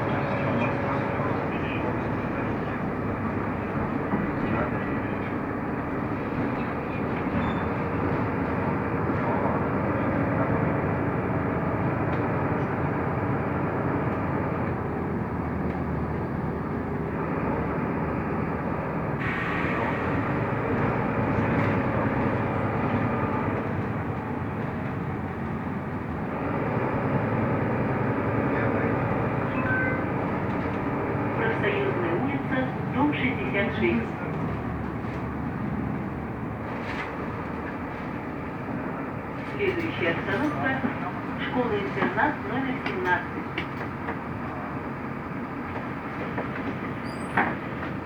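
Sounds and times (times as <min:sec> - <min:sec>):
bus engine and road noise: 0:00.0 - 0:48.0.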